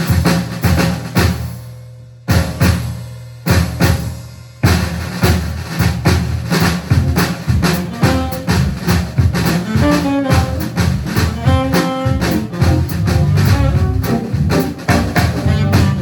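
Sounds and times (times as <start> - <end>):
jazz band playing: 0.0 - 1.5, 4.8 - 16.0
bass drum and snare strokes: 0.0 - 16.0.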